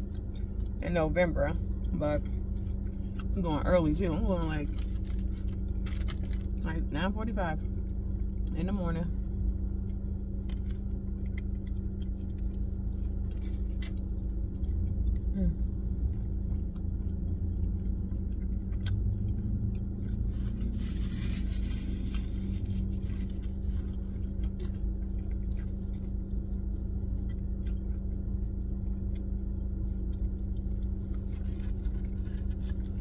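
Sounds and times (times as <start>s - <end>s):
car interior hum: 0.0s - 33.0s
person chewing food: 1.6s - 3.4s, 9.2s - 33.0s.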